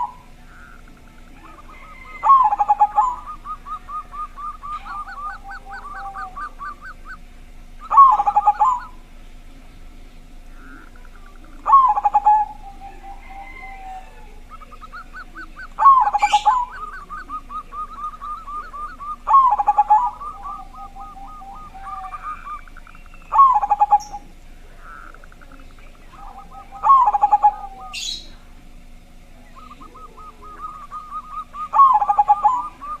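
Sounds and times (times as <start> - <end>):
dove cooing: 0.0 - 33.0.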